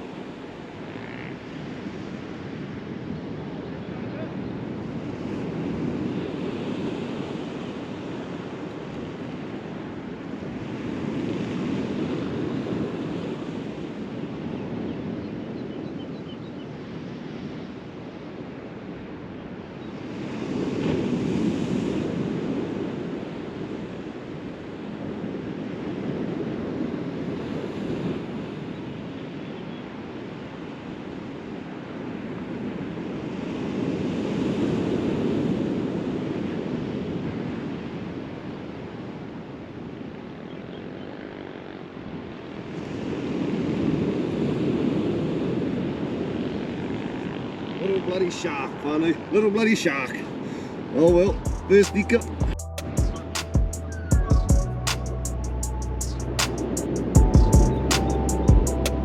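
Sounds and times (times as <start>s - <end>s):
surf washing onto beach: 20.0s - 28.8s.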